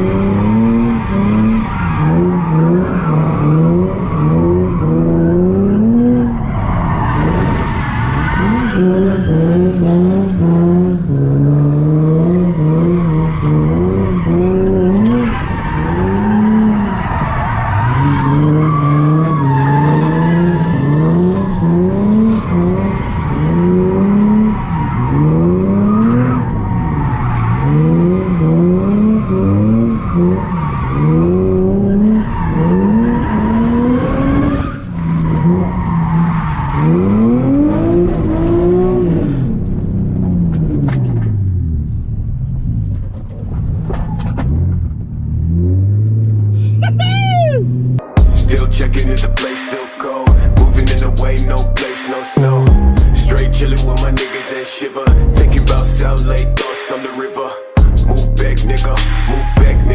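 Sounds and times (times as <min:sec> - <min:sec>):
tyres squealing and skidding: 0:00.0 - 0:39.5, 0:43.3 - 0:44.9, 0:45.6 - 0:59.9
car engine revving hard: 0:00.0 - 0:39.8.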